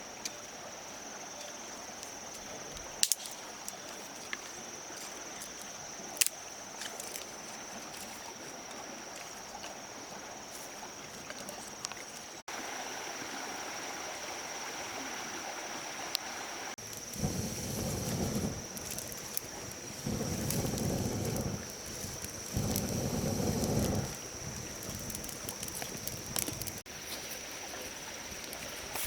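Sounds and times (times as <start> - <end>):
soft even hiss: 0.0 - 29.0.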